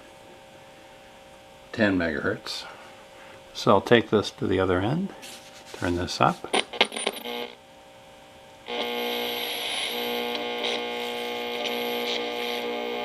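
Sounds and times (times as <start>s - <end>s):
radio speaker buzzing tone: 6.5s - 7.6s, 8.6s - 13.0s.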